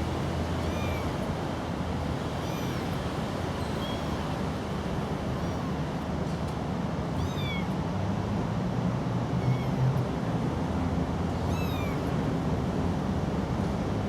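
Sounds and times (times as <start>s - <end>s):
kitten mewing: 0.6s - 1.2s, 2.4s - 2.8s, 7.2s - 7.7s, 11.4s - 12.2s.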